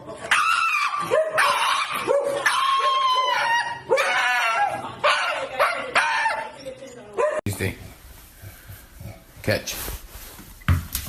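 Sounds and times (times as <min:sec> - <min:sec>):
dog howling: 0:00.5 - 0:06.6.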